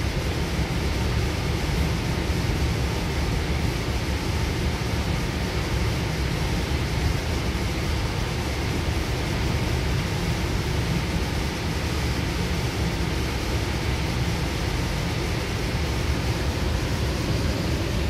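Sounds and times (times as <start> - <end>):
rushing noise: 0.0 - 18.0
train wheels rumbling on rail: 0.0 - 18.0.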